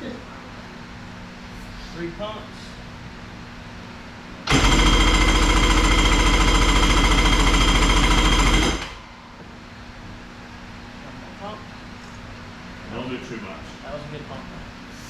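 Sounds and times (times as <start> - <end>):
two-stroke jet-ski engine running: 4.5 - 9.0.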